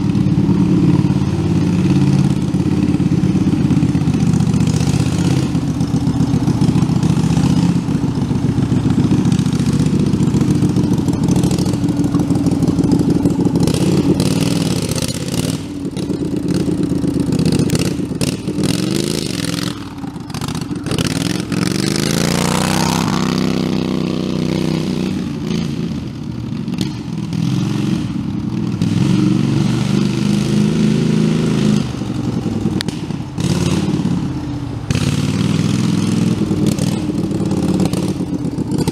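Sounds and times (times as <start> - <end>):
tractor engine revving: 0.0 - 38.9.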